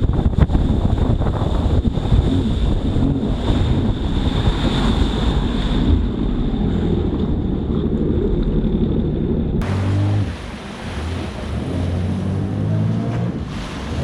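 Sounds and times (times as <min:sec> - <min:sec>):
wind buffeting microphone: 0:00.0 - 0:09.6
jet ski engine rumbling: 0:00.0 - 0:14.0
water rushing: 0:00.0 - 0:14.0.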